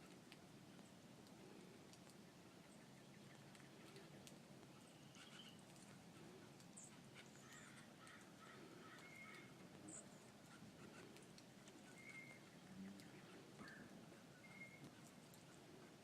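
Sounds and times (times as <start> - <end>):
faint high bird calls: 4.7 - 5.6, 6.7 - 11.2, 11.8 - 15.1.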